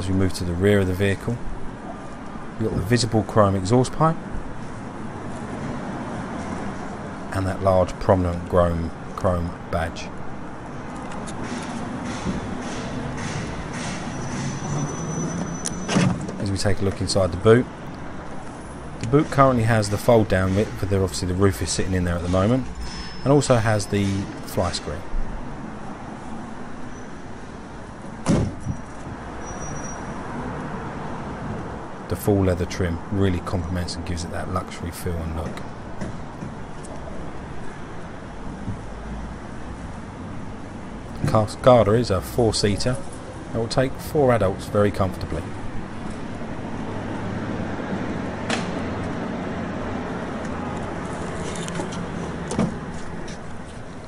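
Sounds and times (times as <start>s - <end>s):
outdoor background hum and rush: 0.0s - 54.0s
traffic noise: 0.0s - 54.0s
car panel shutting thud: 28.2s - 28.8s.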